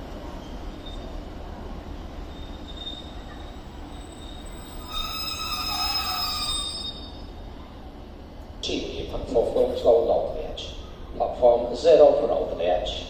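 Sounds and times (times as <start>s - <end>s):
train rumbling: 0.0s - 13.0s
high wheel squeal: 2.2s - 7.4s.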